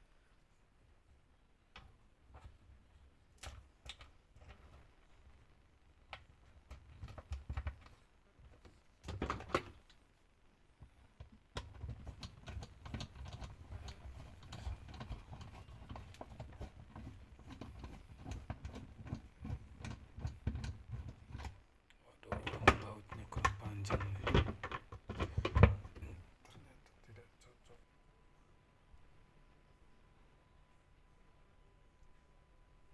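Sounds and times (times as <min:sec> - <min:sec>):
parts and bolts clicking and rattling: 0:03.3 - 0:04.8, 0:11.6 - 0:21.6.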